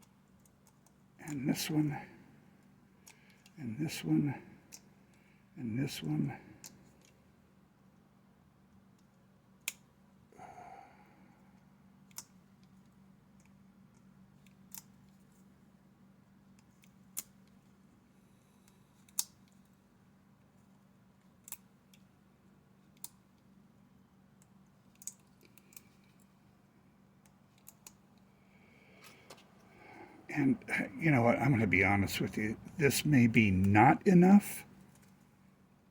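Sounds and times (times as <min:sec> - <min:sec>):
low room hum: 0:00.0 - 0:35.9
sharp small clicks: 0:21.4 - 0:22.1, 0:22.9 - 0:23.2, 0:24.4 - 0:26.3, 0:27.2 - 0:28.2.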